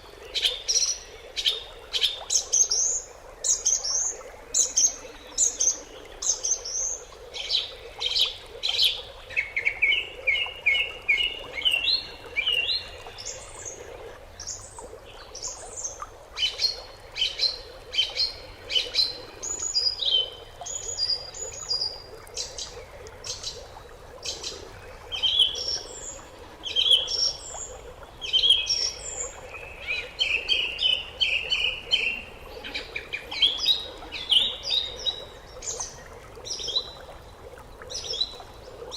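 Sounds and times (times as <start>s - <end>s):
birds chirping and twittering: 24.2s - 37.0s.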